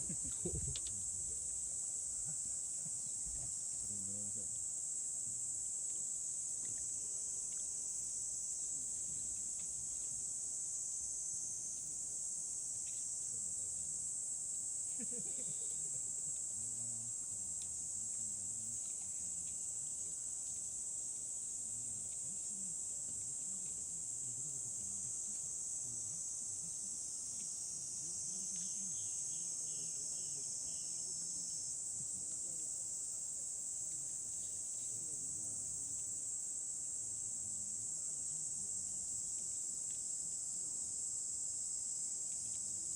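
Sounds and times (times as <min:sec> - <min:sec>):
high-pitched insect chorus: 0:00.0 - 0:42.9
short insect chirps: 0:24.7 - 0:31.9.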